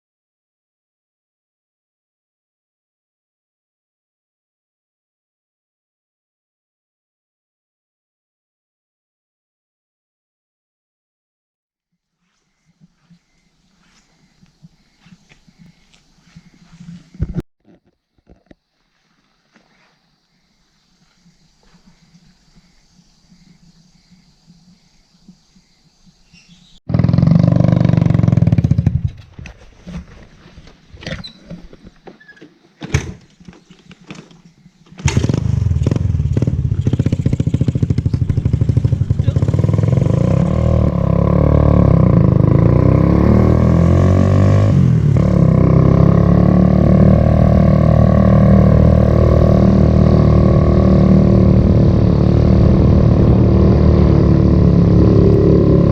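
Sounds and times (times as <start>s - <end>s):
motorcycle engine running: 21.0s - 29.2s, 34.4s - 55.9s.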